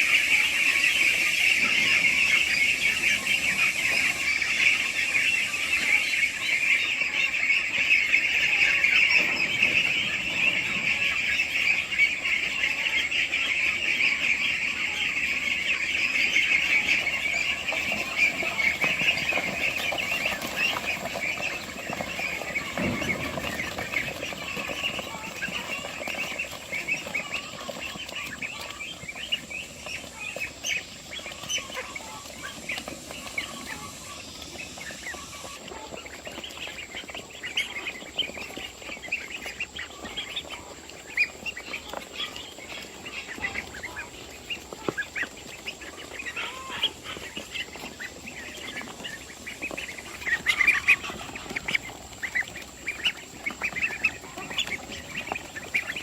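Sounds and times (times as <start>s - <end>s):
poultry calling and squawking: 0.0s - 56.0s.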